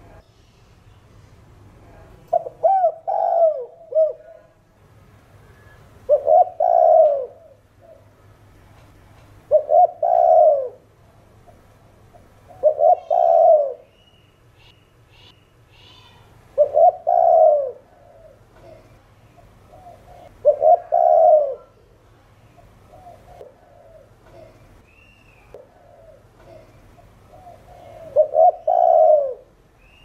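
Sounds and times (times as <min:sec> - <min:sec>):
dove cooing: 0:02.3 - 0:04.6, 0:06.0 - 0:08.2, 0:09.5 - 0:10.9, 0:12.2 - 0:13.9, 0:16.6 - 0:21.8, 0:22.6 - 0:24.6, 0:25.5 - 0:29.6
faint high bird chirps: 0:12.5 - 0:16.3, 0:24.3 - 0:25.6, 0:29.8 - 0:30.0.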